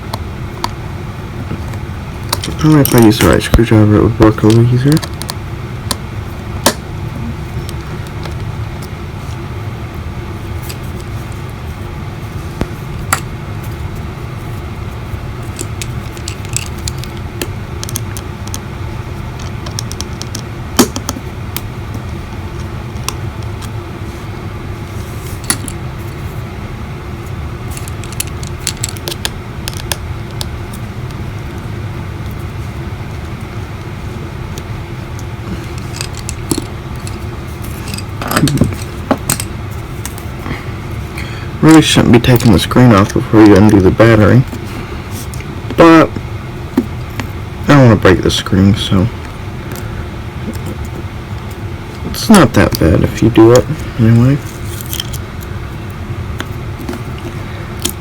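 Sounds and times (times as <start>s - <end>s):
low background hum: 0.0s - 58.0s
screwdriver and metal parts clicking: 15.5s - 17.2s, 27.7s - 30.5s, 35.7s - 40.2s, 54.7s - 55.2s.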